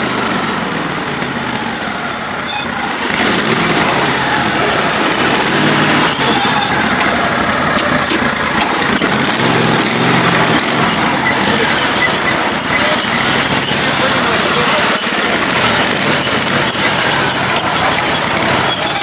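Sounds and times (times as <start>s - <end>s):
lawn tractor engine running: 0.0s - 19.0s
small clinks and rattles: 6.0s - 19.0s.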